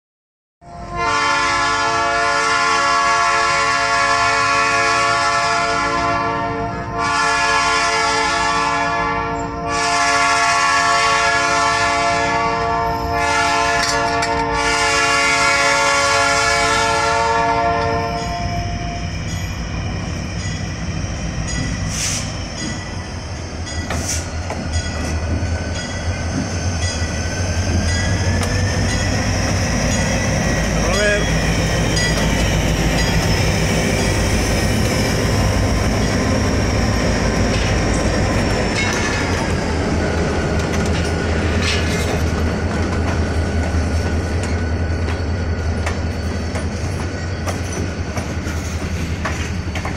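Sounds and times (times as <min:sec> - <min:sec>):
moving train rumble: 0:00.6 - 0:49.9
locomotive air horn blasts: 0:00.7 - 0:18.9.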